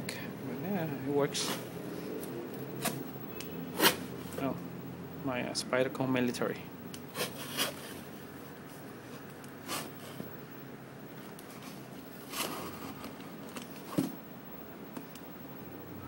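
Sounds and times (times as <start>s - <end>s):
knife slitting tape and cardboard: 3.8s - 4.0s.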